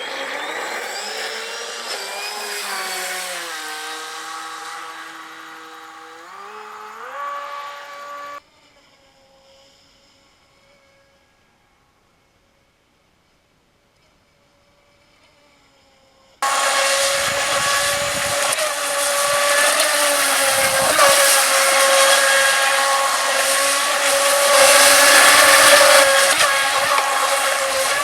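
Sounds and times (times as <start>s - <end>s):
electric motor high whine: 0.0s - 12.0s, 14.3s - 28.0s.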